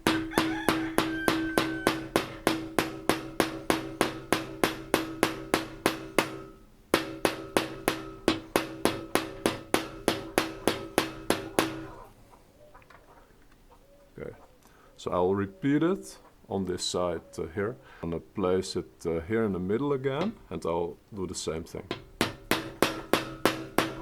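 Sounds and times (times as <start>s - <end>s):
steady metallic ring: 0.0s - 11.8s
hammer tapping punch on metal: 0.0s - 12.0s, 21.9s - 24.0s.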